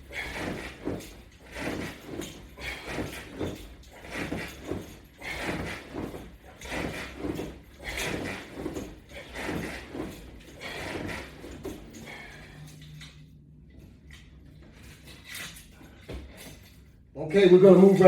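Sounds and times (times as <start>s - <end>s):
rhythmic rubbing and scraping: 0.0s - 12.6s.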